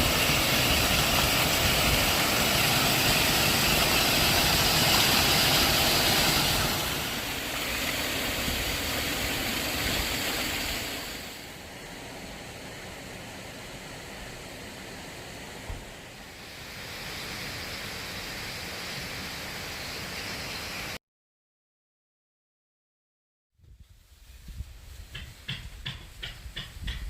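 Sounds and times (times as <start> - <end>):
stream rushing: 0.0 - 21.0.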